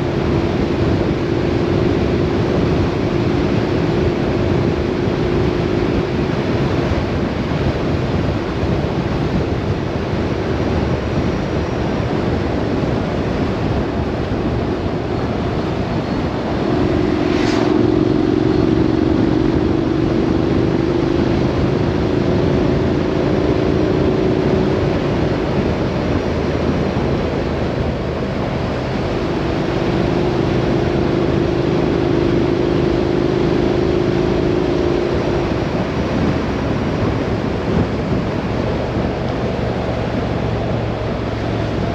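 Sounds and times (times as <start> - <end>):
road and wind noise: 0.0 - 41.9
vehicle engine hum: 0.0 - 41.9
brief whoosh: 15.7 - 19.9.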